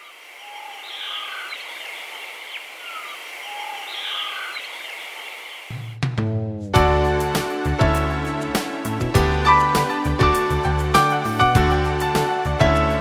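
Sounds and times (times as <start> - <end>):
bird calls and whistles: 0.0 - 5.9.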